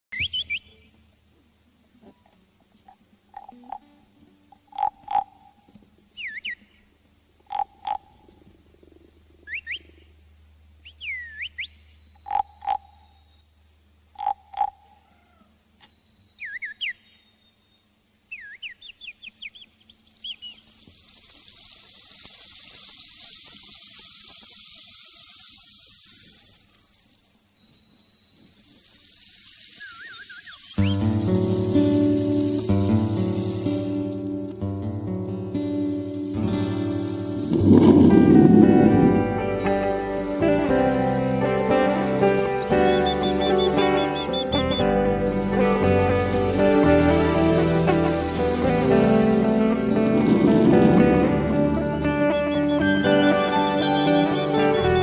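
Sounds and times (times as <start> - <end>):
steady high drone: 36.3 - 43.0, 45.1 - 54.9
animal hooting notes: 36.3 - 55.0
rising whistles: 37.2 - 40.6, 42.4 - 45.0, 50.2 - 55.0.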